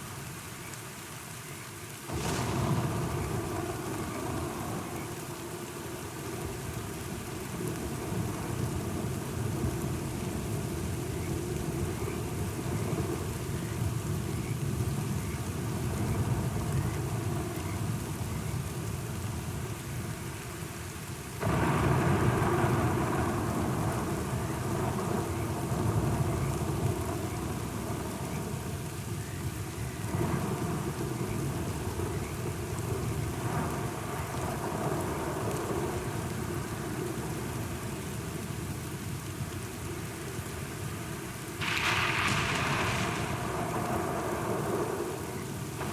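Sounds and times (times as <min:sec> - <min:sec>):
steady rain: 0:00.0 - 0:45.9
rolling thunder: 0:02.1 - 0:05.0, 0:21.4 - 0:28.0, 0:41.6 - 0:45.9.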